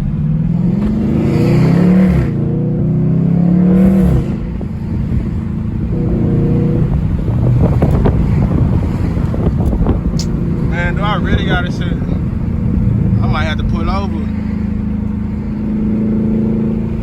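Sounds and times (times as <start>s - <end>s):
car engine accelerating hard: 0.0s - 17.0s
road noise: 0.0s - 17.0s.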